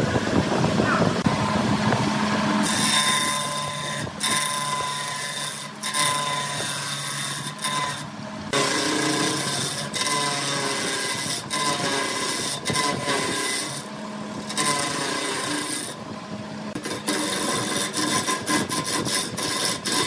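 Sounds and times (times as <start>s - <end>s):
wood lathe motor hum: 1.2s - 20.0s
turning tool scraping wood: 2.3s - 16.0s, 16.7s - 20.0s.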